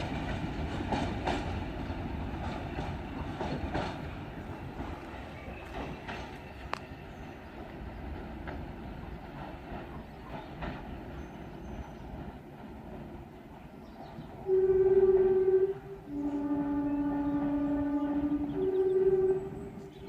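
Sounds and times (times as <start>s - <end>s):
diesel locomotive and wagons rumbling: 0.0s - 20.0s
train horn: 14.4s - 20.0s.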